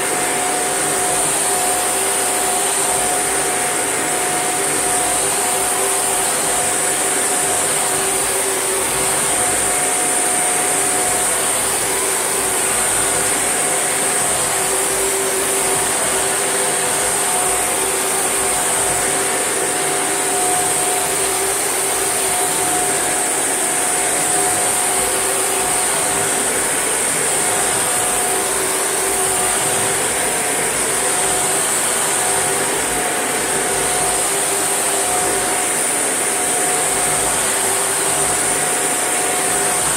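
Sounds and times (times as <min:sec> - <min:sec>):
vacuum cleaner whining: 0:00.0 - 0:39.9.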